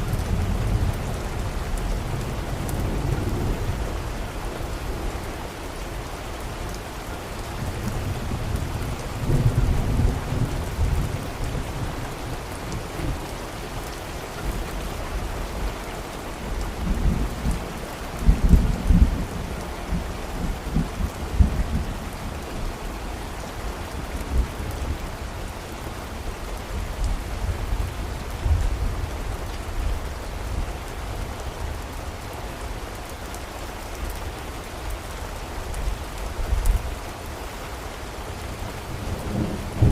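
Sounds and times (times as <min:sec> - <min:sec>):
steady rain falling: 0:00.0 - 0:39.9
thunder rumbling: 0:38.9 - 0:39.9.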